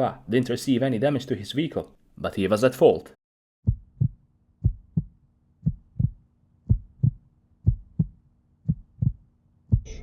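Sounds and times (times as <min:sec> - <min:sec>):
heartbeat thumps: 0:03.6 - 0:10.0.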